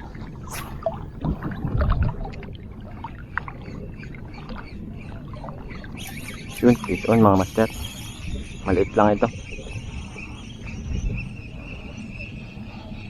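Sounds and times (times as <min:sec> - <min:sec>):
low water surge: 0:00.0 - 0:07.1
water lapping at shoreline: 0:00.0 - 0:10.8.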